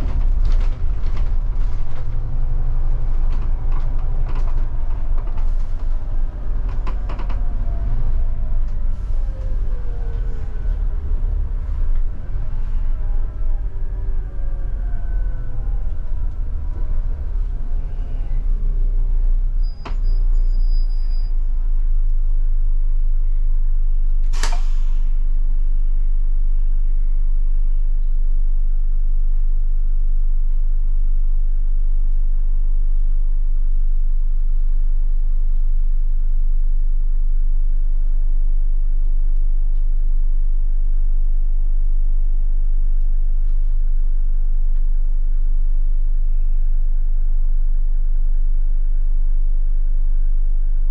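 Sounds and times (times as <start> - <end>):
bus diesel engine idling: 0.0 - 28.6, 42.5 - 50.8
short sharp air hiss: 24.3 - 25.1.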